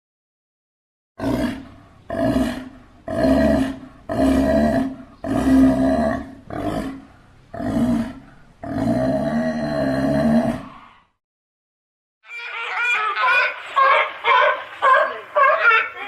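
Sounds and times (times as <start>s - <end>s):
sea lion roaring: 1.2s - 11.0s.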